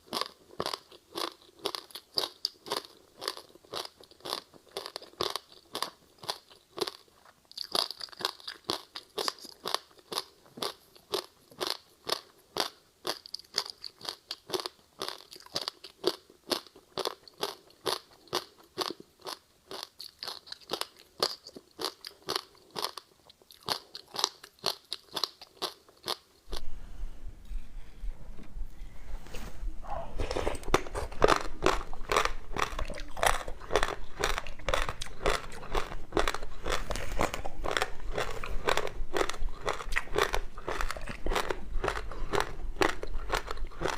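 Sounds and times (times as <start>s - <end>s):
ice crunching while chewed: 0.0s - 26.6s, 30.3s - 43.9s
low hum: 26.5s - 39.6s
rustling: 26.5s - 41.4s.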